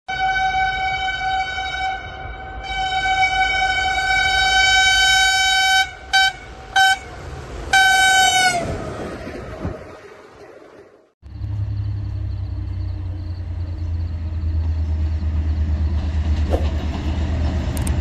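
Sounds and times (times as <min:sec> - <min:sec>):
locomotive horn blasts: 0:00.1 - 0:08.8
train rumble: 0:00.2 - 0:18.0.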